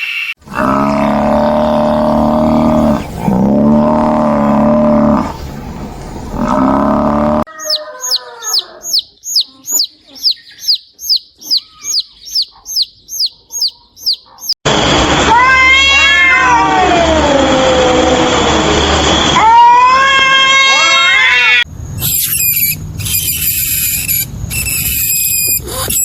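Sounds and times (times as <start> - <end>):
high-pitched falling chirps: 7.5 - 14.2, 22.0 - 26.0
cat meowing: 15.3 - 17.0.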